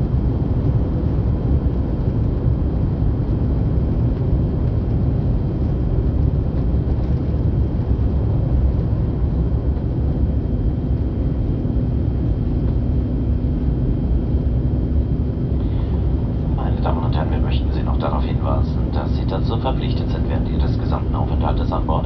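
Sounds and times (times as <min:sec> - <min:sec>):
jet engines roaring in cabin: 0:00.0 - 0:22.0
faint steady hum: 0:07.0 - 0:22.0.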